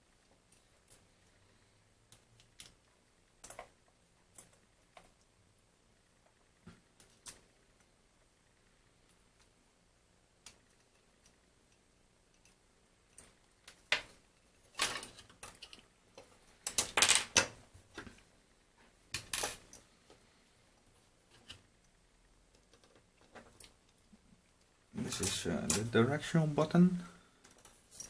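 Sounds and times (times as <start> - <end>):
small phone parts clicking and tapping: 2.1 - 5.2.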